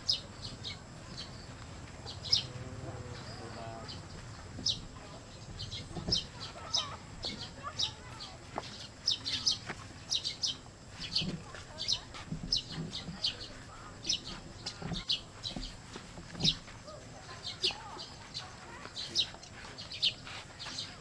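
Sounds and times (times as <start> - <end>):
birds chirping: 0.0 - 21.0
soft low bird calls: 0.0 - 21.0.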